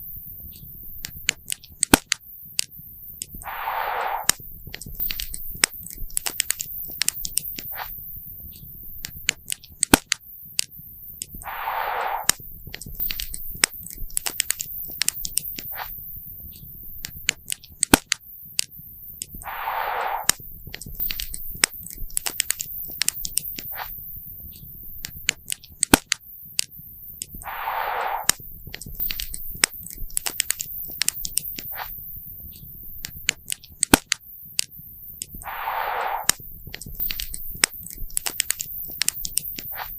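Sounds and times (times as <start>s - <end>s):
brief rush of noise: 3.4s - 4.4s, 11.4s - 12.4s, 19.4s - 20.4s, 27.4s - 28.4s, 35.4s - 36.4s.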